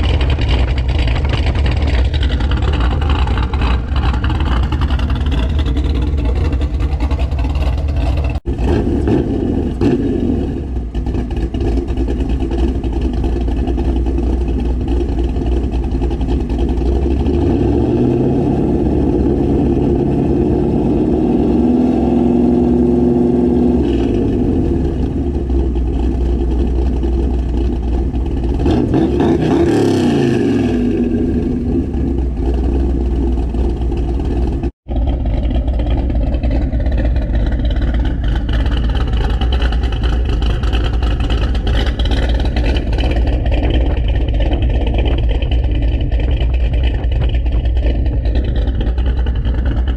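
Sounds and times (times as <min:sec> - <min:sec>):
car engine revving: 0:00.0 - 0:49.9.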